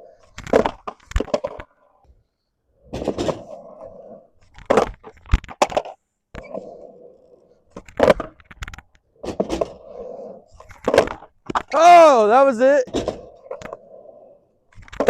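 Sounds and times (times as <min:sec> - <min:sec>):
skateboard wheels rolling on concrete: 0:00.0 - 0:15.0
skateboard wooden clacks: 0:00.2 - 0:01.9, 0:04.5 - 0:06.7, 0:07.7 - 0:09.9, 0:10.6 - 0:11.8.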